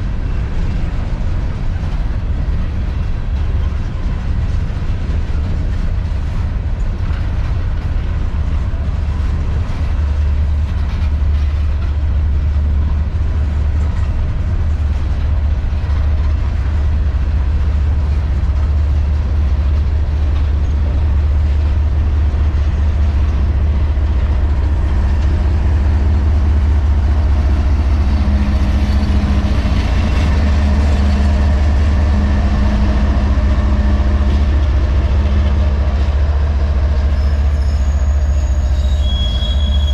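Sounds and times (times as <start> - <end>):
train rolling by rumble: 0.0 - 39.9.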